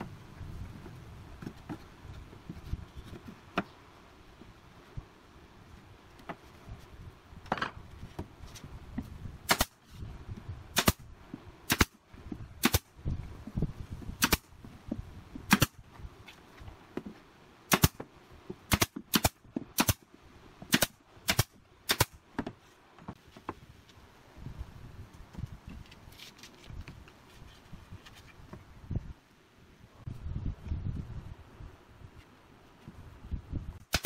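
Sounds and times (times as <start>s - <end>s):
nail gun shots: 9.5s - 9.8s, 10.7s - 11.0s, 11.7s - 12.0s, 12.6s - 12.9s, 14.2s - 14.5s, 15.5s - 15.8s, 17.7s - 18.0s, 18.7s - 20.0s, 20.7s - 22.2s.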